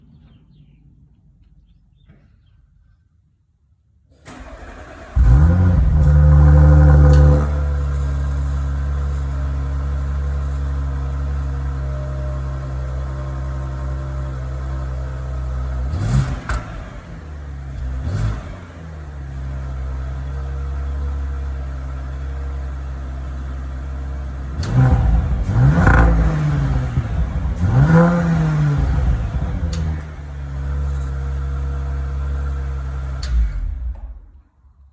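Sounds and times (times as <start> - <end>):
car engine starting and revving: 4.2 - 34.4.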